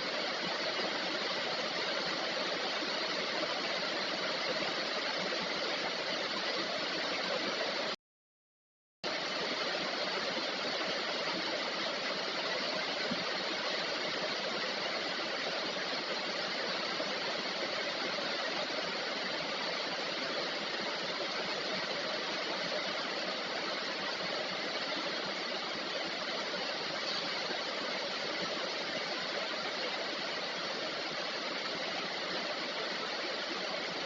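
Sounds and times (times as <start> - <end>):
heavy rain: 9.1 - 34.0.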